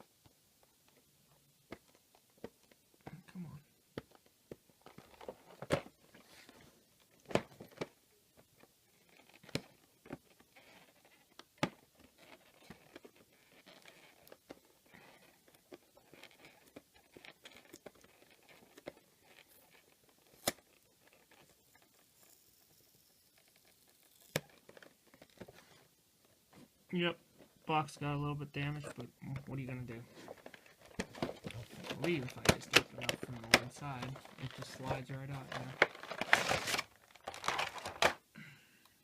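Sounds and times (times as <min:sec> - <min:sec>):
cardboard clicks and snaps: 0:20.3 - 0:20.7
packaging crinkling and tearing: 0:29.6 - 0:38.2.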